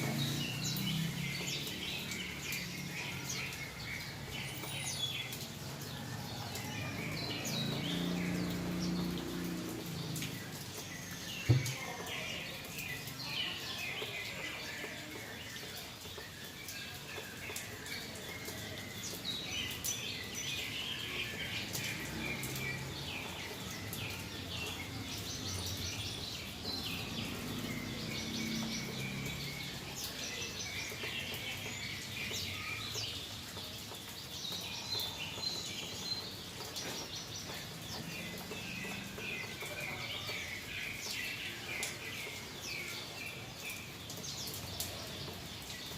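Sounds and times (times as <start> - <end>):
bird chirping and twittering: 0.0 - 45.9.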